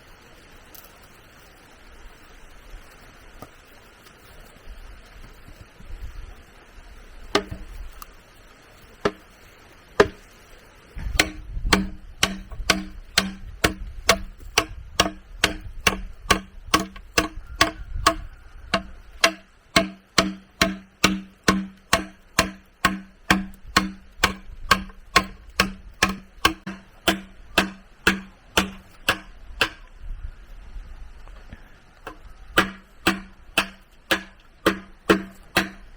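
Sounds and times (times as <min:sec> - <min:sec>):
tool striking bamboo: 0:07.3 - 0:07.8, 0:09.0 - 0:09.4, 0:10.0 - 0:10.3, 0:11.0 - 0:30.0, 0:32.0 - 0:35.9.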